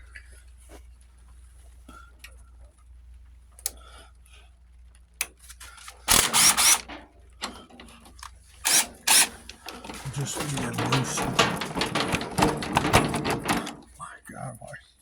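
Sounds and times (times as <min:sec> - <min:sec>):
hand tools clicking on metal: 0:05.2 - 0:14.0
loud rasping rattle: 0:05.8 - 0:14.0.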